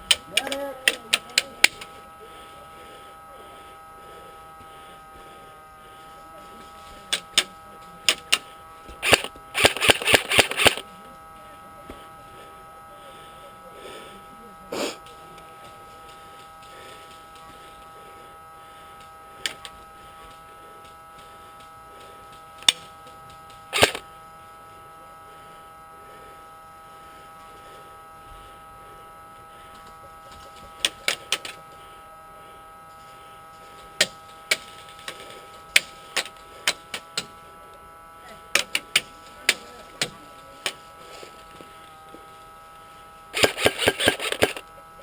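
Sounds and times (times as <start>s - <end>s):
steady high whine: 0.0s - 45.0s
airsoft guns firing: 43.4s - 44.6s.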